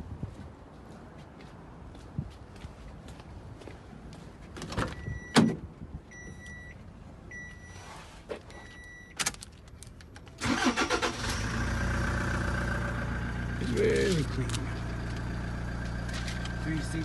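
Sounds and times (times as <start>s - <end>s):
diesel engine starting and idling: 10.3s - 17.0s.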